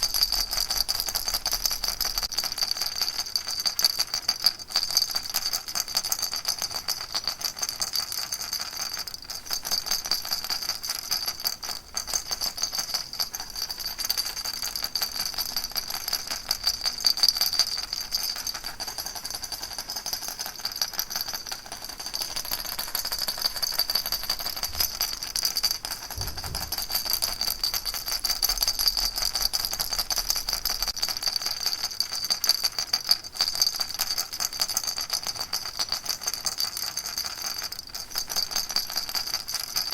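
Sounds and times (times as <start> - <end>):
baby rattle shaken: 7.6 - 34.6.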